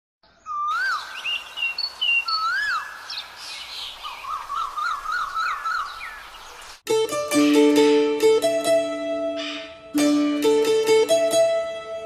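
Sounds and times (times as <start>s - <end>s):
birds calling: 0.2s - 6.8s, 9.4s - 9.8s.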